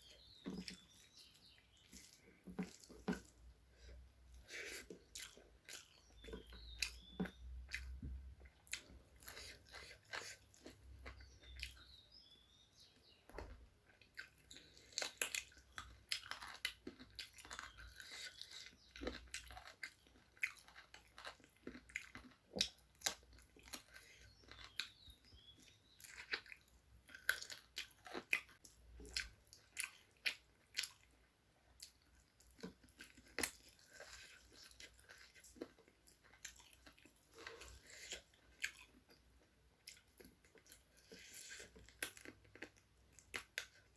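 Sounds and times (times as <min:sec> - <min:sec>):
close chewing and biting food: 0:00.0 - 0:12.1, 0:13.8 - 0:43.9.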